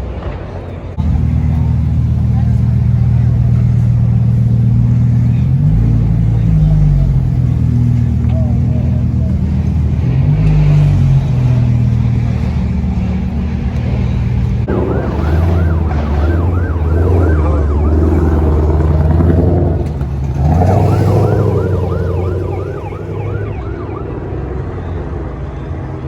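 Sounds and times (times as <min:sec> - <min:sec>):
low engine rumble: 0:00.2 - 0:25.7
siren yelping: 0:14.6 - 0:24.4.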